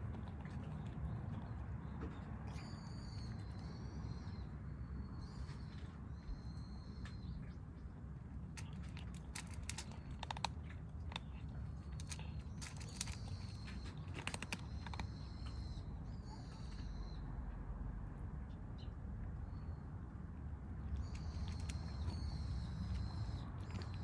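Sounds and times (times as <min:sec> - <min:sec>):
kittens crunching dry food: 0:00.0 - 0:03.8, 0:08.0 - 0:15.7, 0:20.8 - 0:24.0.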